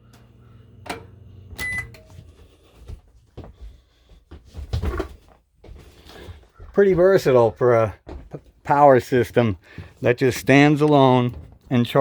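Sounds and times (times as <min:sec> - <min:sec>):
microwave oven humming: 0:00.0 - 0:02.5
short beep: 0:01.6 - 0:02.0.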